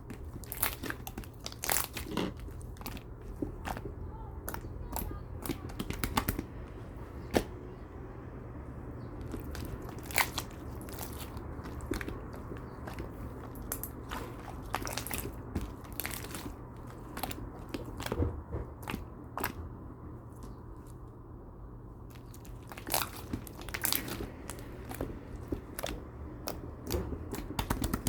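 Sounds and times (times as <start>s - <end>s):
steady low hum: 0.0s - 28.0s
crisp crunches and clicks: 0.1s - 3.9s, 9.2s - 18.2s, 22.1s - 28.0s.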